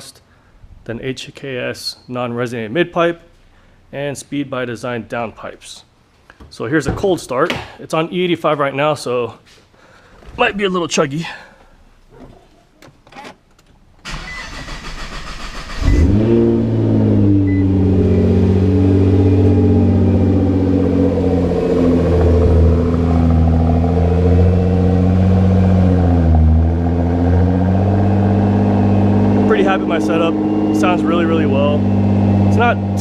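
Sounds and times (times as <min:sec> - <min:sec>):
car engine idling: 0:13.8 - 0:33.0
car engine cranking on starter: 0:14.0 - 0:17.8.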